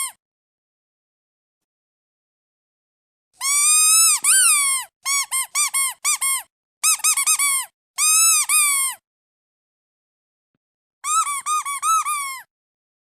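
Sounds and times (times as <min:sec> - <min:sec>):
rubber duck squeaky toy: 0:03.4 - 0:09.0, 0:11.0 - 0:12.5.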